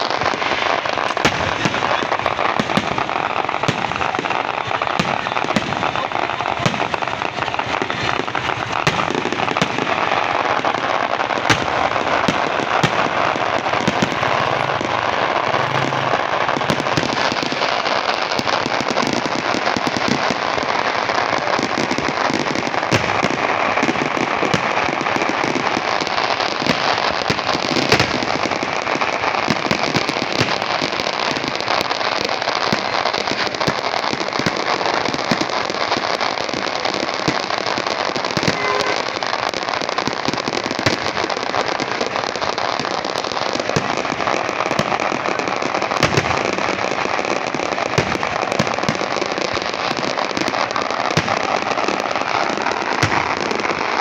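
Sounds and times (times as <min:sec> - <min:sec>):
firework shells bursting bangs: 0:00.0 - 0:54.0
fireworks crackling: 0:00.0 - 0:54.0.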